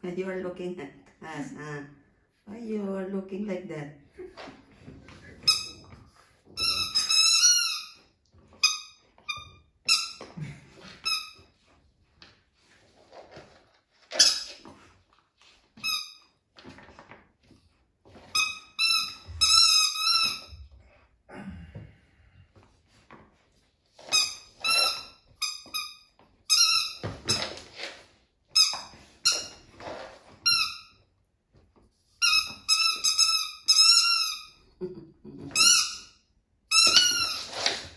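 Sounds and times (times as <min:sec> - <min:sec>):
squeaky dog toy squeaking: 0:05.4 - 0:06.0, 0:06.6 - 0:10.3, 0:14.1 - 0:14.7, 0:15.8 - 0:16.3, 0:18.3 - 0:20.6, 0:24.0 - 0:27.6, 0:28.5 - 0:29.7, 0:30.4 - 0:31.0, 0:32.2 - 0:34.6, 0:35.5 - 0:37.8.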